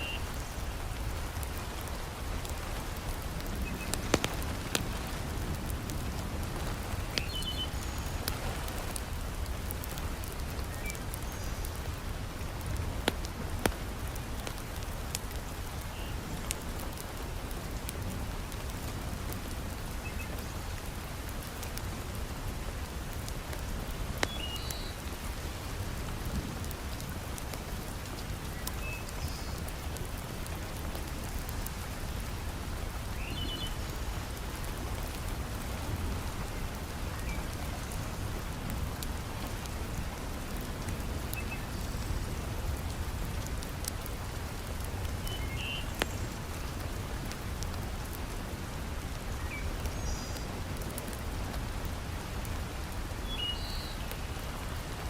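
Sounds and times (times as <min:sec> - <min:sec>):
heavy rain falling: 0:00.0 - 0:55.0
sharp pops and clicks: 0:03.8 - 0:04.9.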